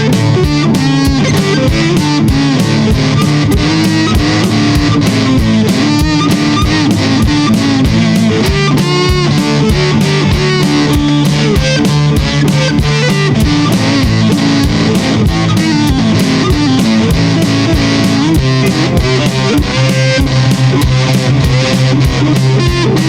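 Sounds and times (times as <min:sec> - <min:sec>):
fingerstyle guitar: 0:00.0 - 0:23.0.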